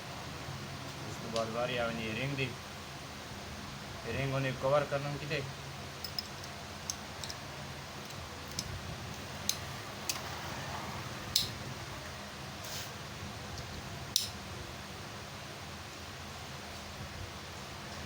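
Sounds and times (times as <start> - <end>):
low background hum: 0.0 - 18.0
metallic clicks and taps: 6.0 - 7.4, 8.0 - 10.2.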